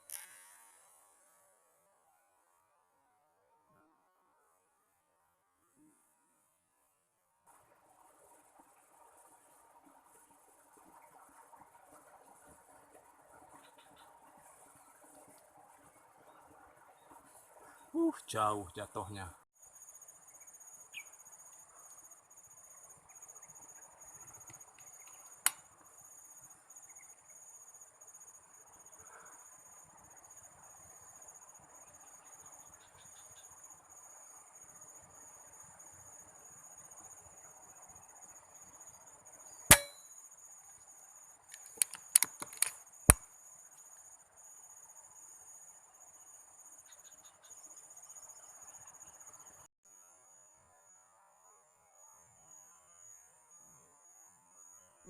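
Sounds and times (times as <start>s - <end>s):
insects chirring: 0.0s - 1.4s, 7.5s - 55.0s
sharp crack: 39.7s - 40.0s
quick sharp clicks: 41.5s - 43.2s.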